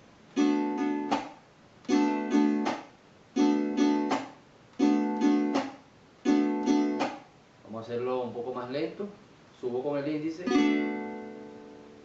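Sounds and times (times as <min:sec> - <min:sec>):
strummed small guitar waltz: 0:00.4 - 0:01.3, 0:01.9 - 0:02.8, 0:03.4 - 0:07.2, 0:10.4 - 0:12.0.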